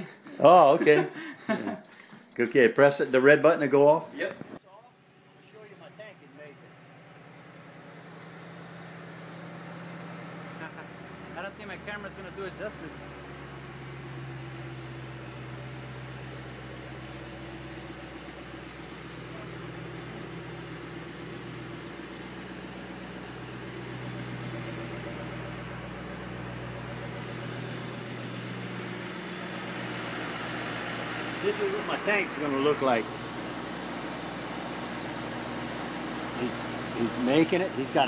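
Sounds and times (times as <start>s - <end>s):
engine idling: 4.7s - 38.0s.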